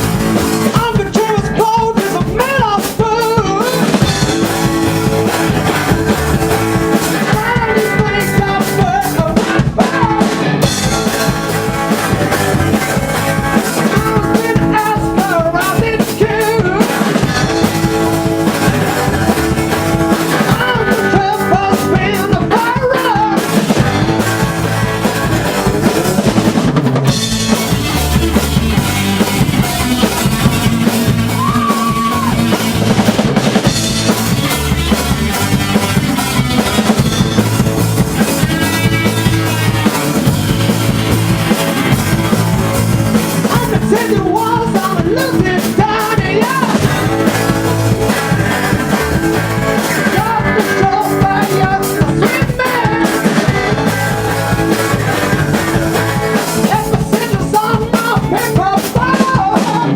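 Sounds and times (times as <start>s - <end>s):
rock band playing live: 0.0s - 59.9s
person singing: 0.6s - 4.5s, 7.0s - 10.7s, 13.6s - 17.7s, 18.5s - 23.6s, 31.3s - 32.6s, 43.4s - 47.6s, 49.8s - 59.9s.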